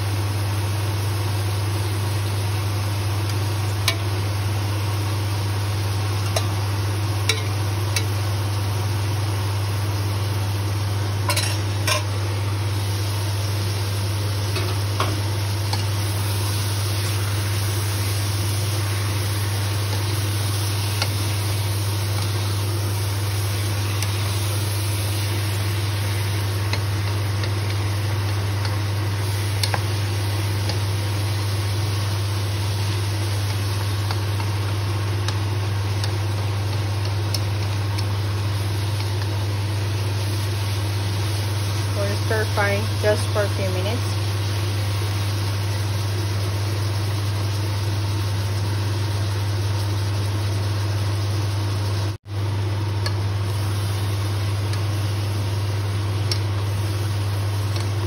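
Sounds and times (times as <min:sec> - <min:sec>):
meat and onions sizzling: 0:00.0 - 0:58.0
steady low hum: 0:00.6 - 0:50.5
utensils knocking on pot: 0:07.3 - 0:07.5.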